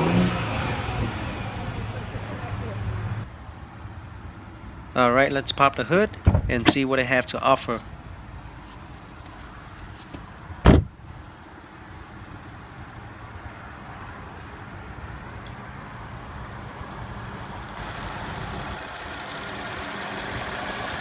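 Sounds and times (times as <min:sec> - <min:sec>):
car engine idling: 0:00.0 - 0:21.0
hood release thump: 0:06.2 - 0:06.9, 0:10.1 - 0:10.9.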